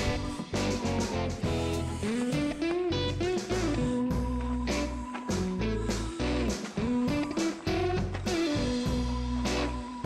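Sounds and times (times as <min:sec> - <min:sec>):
bass: 0:00.0 - 0:10.0.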